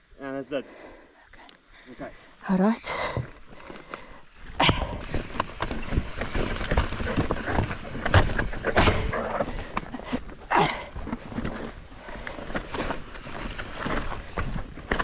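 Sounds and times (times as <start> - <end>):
bike rattling over rocks: 3.2 - 15.0.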